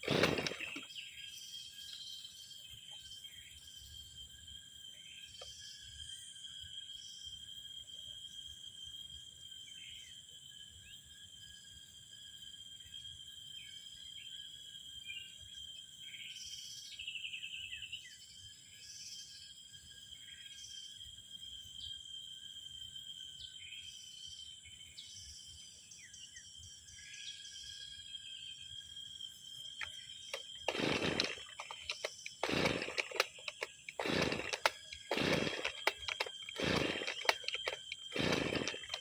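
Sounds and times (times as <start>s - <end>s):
loud rasping sound: 0.0s - 0.8s, 30.3s - 39.0s
birds calling: 0.0s - 1.0s, 29.9s - 39.0s.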